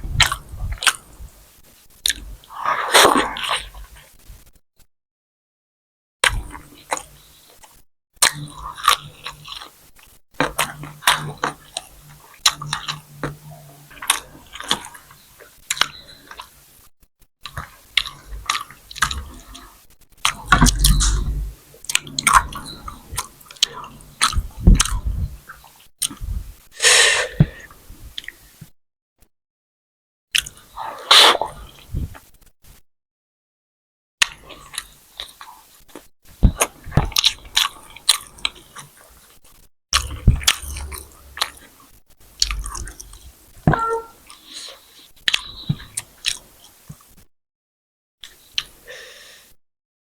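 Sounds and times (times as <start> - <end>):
mouth chewing food: 6.2 - 9.8, 10.4 - 16.6, 17.4 - 26.3, 34.5 - 39.0, 40.0 - 44.7.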